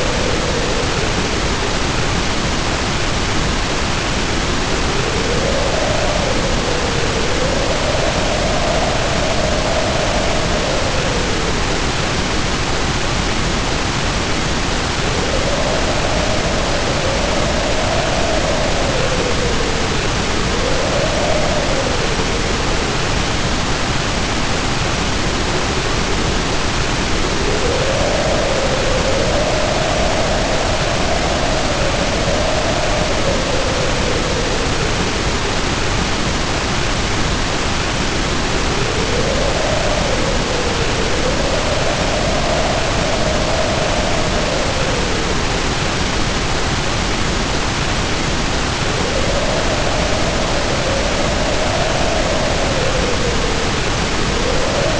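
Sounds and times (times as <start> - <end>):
heavy rain pouring: 0.0 - 54.9
howling wind: 0.0 - 54.9.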